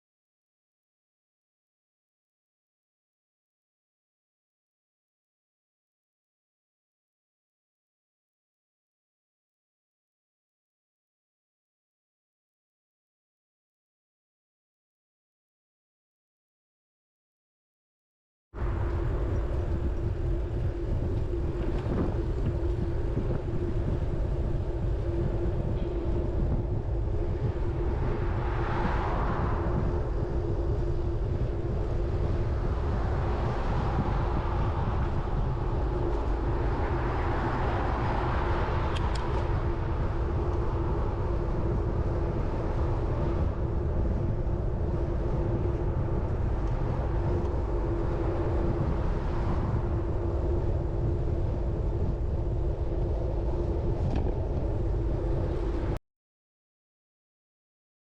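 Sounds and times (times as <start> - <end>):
constant hum: 18.6 - 56.0
wind rumble on microphone: 18.6 - 56.0.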